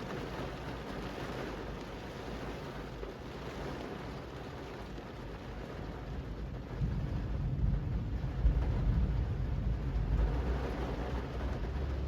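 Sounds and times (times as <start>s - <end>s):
rain falling on street: 0.0s - 12.0s
low rumble: 6.6s - 12.0s.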